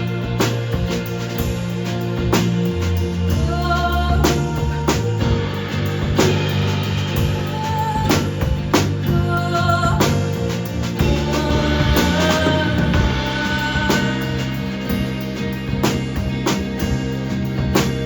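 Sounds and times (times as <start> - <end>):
drum kit hits: 0.0 - 3.6, 4.2 - 18.0
live band playing: 0.0 - 18.0
person singing: 3.2 - 15.2.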